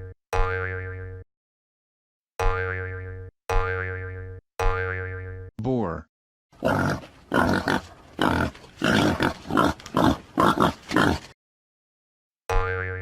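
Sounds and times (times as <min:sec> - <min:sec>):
wild boar grunting and squealing: 0:06.6 - 0:11.4.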